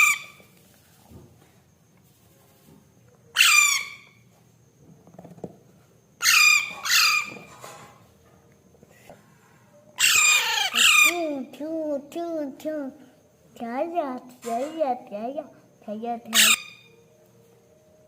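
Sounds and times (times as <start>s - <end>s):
baby parrot calling: 0.0s - 0.4s, 3.4s - 4.2s, 6.2s - 7.5s, 10.0s - 11.3s, 16.3s - 16.9s.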